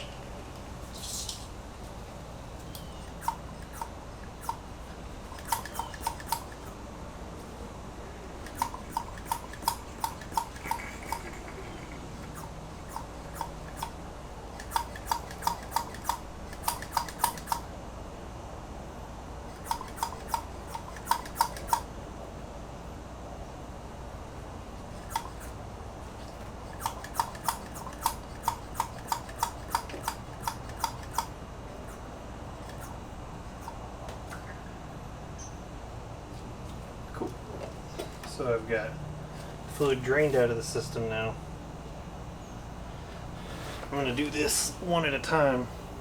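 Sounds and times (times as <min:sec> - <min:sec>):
hand pump handle clicking: 0:02.7 - 0:04.7, 0:05.3 - 0:06.8, 0:08.4 - 0:11.5, 0:12.1 - 0:17.7, 0:19.5 - 0:21.9, 0:25.0 - 0:25.6, 0:26.2 - 0:31.3, 0:32.6 - 0:32.9.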